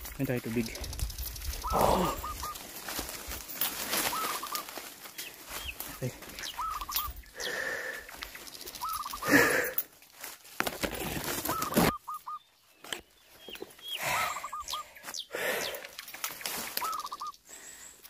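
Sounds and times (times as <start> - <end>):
bird calling quick hooked notes: 0.4 - 2.6, 4.0 - 4.7, 6.4 - 7.2, 8.2 - 9.3, 11.4 - 13.0, 15.8 - 17.5
person breathing heavily: 1.7 - 2.3, 7.2 - 8.3, 9.2 - 9.9, 13.9 - 16.1, 17.4 - 18.0.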